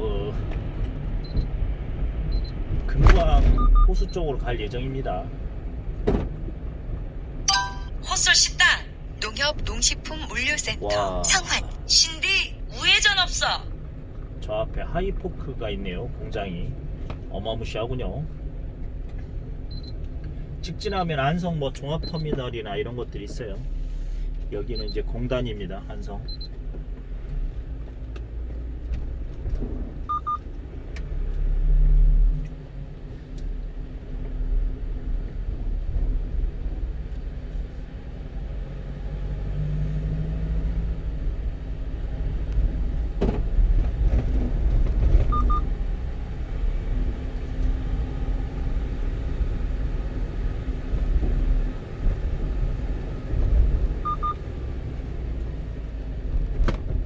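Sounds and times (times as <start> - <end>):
truck engine and road rumble: 0.0 - 57.0
short high double beep: 3.5 - 4.0, 7.5 - 8.0.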